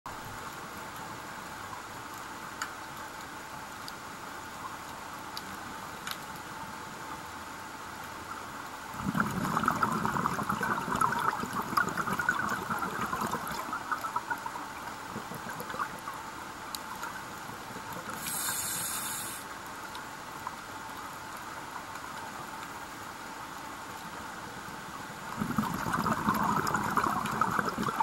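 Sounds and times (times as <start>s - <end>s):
exhaled bubbles rushing underwater: 8.9s - 16.2s, 25.3s - 28.0s
underwater hum: 8.9s - 20.0s, 25.3s - 28.0s
regulator hiss: 18.1s - 19.6s.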